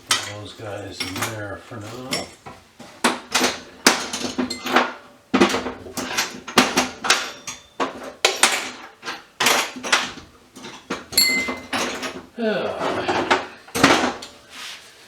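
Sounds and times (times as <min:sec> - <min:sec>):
scrap metal clanking into a bin: 0:00.0 - 0:14.4.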